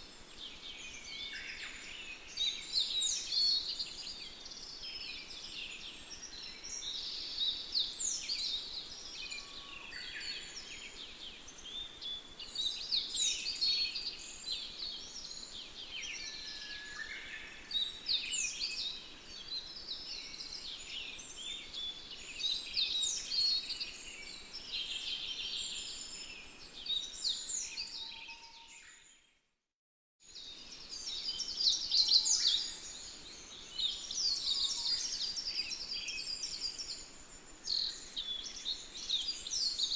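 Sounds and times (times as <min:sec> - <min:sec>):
birds chirping and singing: 0:30.4 - 0:39.9.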